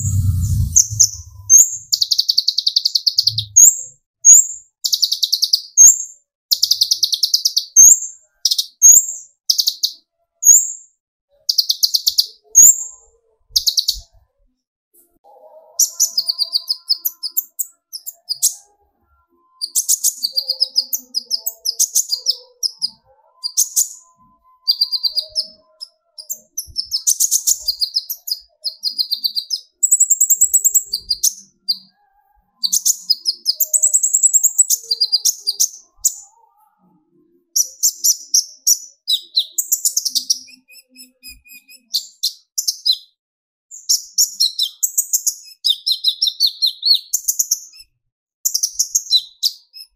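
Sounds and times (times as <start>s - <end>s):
sunbird high chittering song: 19.6s - 31.9s.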